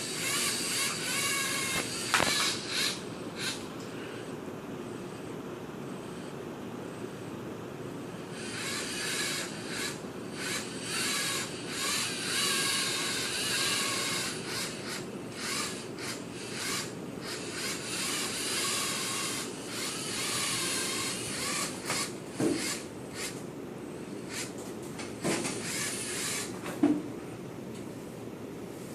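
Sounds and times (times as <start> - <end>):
small electric motors whirring: 0.0 - 3.7, 8.3 - 23.4, 24.2 - 24.6, 25.2 - 26.6.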